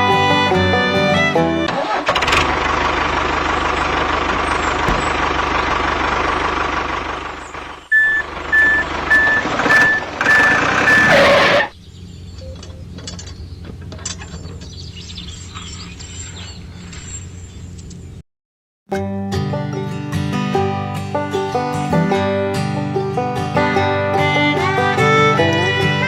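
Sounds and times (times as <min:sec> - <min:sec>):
truck engine running: 0:00.0 - 0:18.2, 0:22.9 - 0:26.0
reversing alarm beeping: 0:07.9 - 0:11.7.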